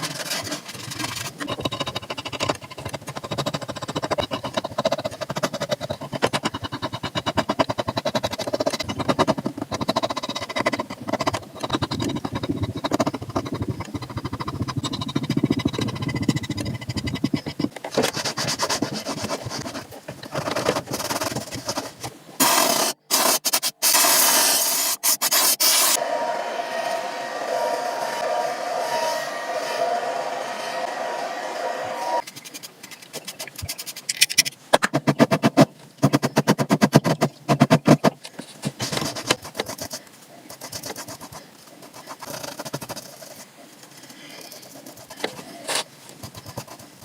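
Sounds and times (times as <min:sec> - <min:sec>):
brush scrubbing leather shoe: 0:00.0 - 0:26.0, 0:35.0 - 0:47.0
loud rushing noise: 0:26.0 - 0:32.2.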